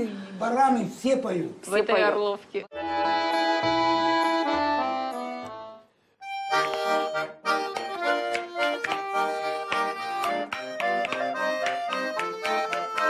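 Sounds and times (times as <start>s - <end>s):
accordion playing folk tune: 2.7s - 13.0s.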